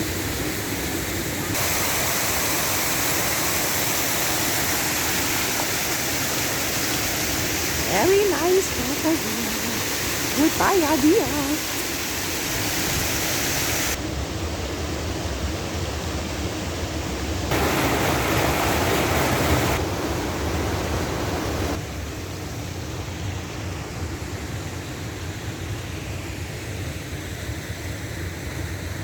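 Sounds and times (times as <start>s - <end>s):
fountain water splashing into basin: 1.5s - 14.0s, 17.5s - 19.9s.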